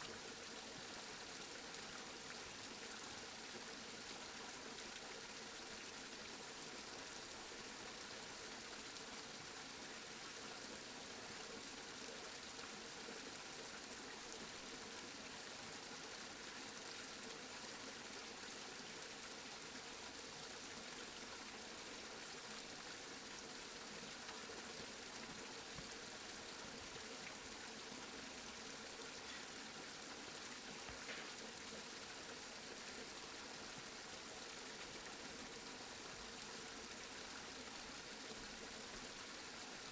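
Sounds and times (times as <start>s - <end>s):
steady rain: 29.0s - 32.0s.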